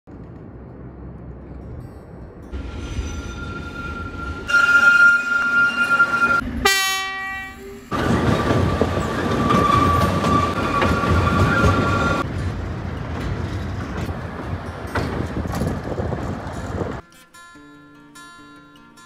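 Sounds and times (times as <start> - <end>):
running train rumble: 0.1 - 17.0
high wheel squeal: 2.6 - 6.4, 7.4 - 12.2
train horn blast: 3.4 - 7.8.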